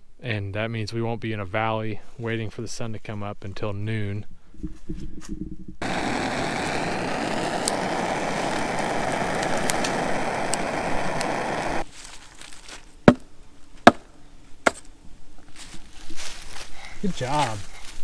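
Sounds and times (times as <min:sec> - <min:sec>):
rushing noise with crackles: 0:05.8 - 0:11.9.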